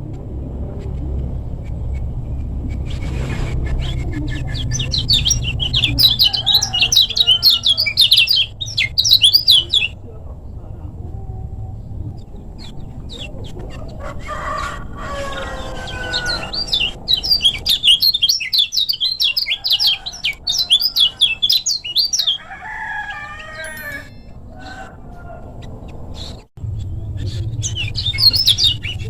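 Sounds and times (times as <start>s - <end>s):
songbird rapid high chirps: 2.8s - 10.0s, 15.3s - 22.6s, 26.2s - 29.0s
bird drawn-out calls: 3.0s - 10.0s, 13.1s - 25.5s.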